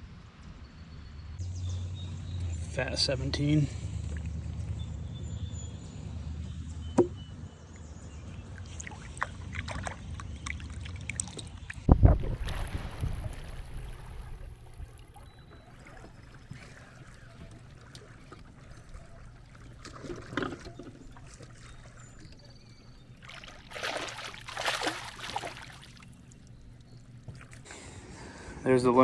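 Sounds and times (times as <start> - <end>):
water splashing around kayak: 8.5 - 28.0.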